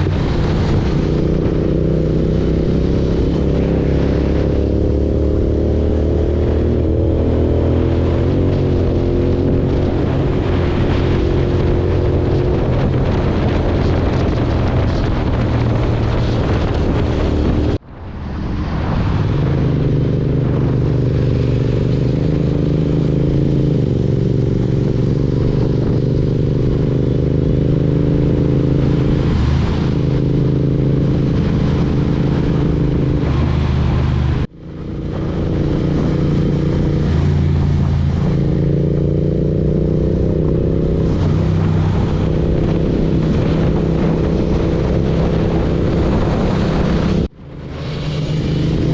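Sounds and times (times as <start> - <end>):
rushing wind noise: 0.0 - 48.9
motorcycle engine running: 19.7 - 48.9.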